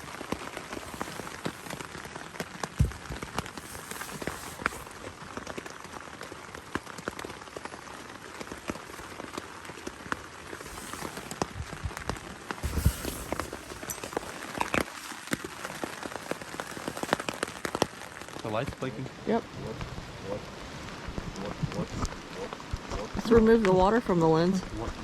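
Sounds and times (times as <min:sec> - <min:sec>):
heavy raindrops tapping: 0:00.0 - 0:20.1
steady rain falling: 0:00.0 - 0:25.0
low thump: 0:02.8 - 0:03.2.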